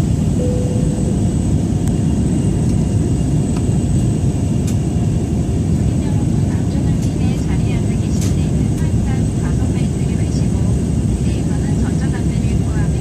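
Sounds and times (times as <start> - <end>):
high whine: 0.0 - 3.7
jet engine rumble in cabin: 0.0 - 13.0
soft tone: 0.3 - 1.8.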